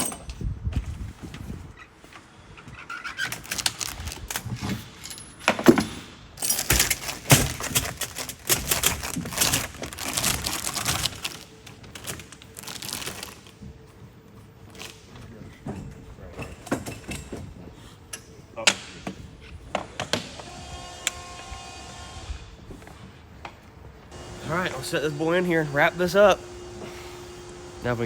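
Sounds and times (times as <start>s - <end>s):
metal pieces clinking and rattling: 6.4s - 11.1s.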